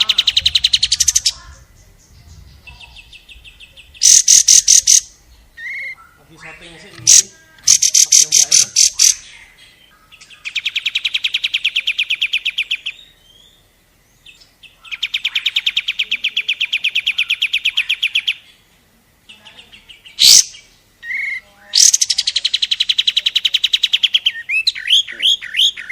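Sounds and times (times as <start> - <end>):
songbird trilling: 0.0 - 18.6, 19.3 - 25.9
sharp upward-sweeping bird call: 4.0 - 9.3, 20.2 - 22.4.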